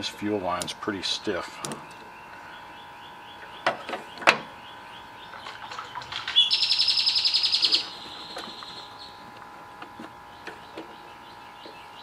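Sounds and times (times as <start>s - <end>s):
songbird trilling: 1.8s - 9.2s.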